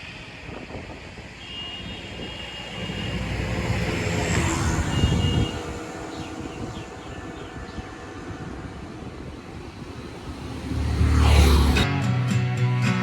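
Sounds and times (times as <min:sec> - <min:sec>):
wind rush: 0:00.0 - 0:11.9.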